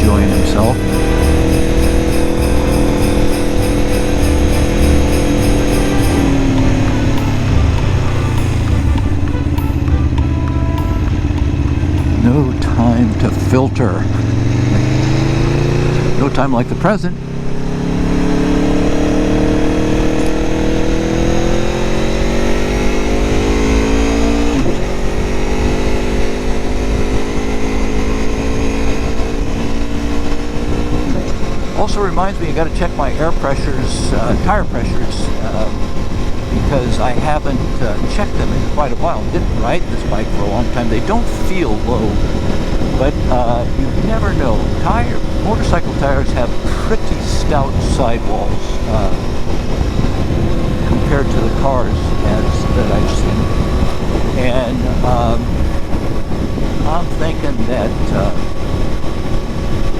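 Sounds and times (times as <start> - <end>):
jingle bells shaken: 0.0 - 10.2, 10.8 - 12.8
motorcycle engine running: 0.0 - 16.6, 17.2 - 59.9
wind rumble on microphone: 17.4 - 59.9.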